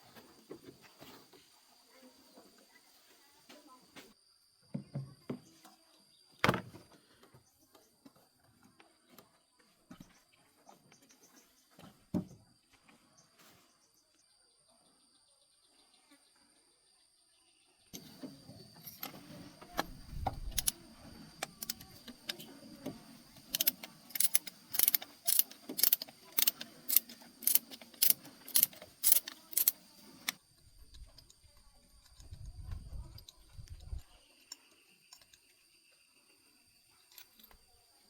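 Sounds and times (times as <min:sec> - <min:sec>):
metallic clicking of hand tools: 0:18.8 - 0:30.4.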